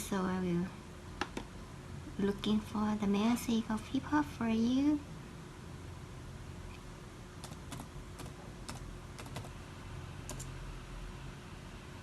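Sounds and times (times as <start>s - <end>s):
low steady hum: 0.0s - 12.0s
keyboard typing clicks: 7.4s - 9.5s, 10.3s - 10.5s.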